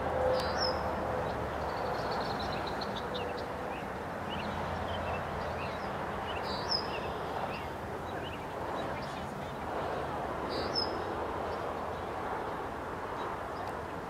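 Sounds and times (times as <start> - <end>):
small birds chirping: 1.6 - 9.7.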